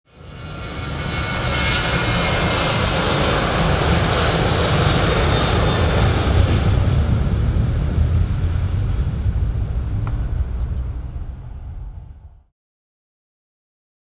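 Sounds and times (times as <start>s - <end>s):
jet engines running: 0.2s - 12.5s.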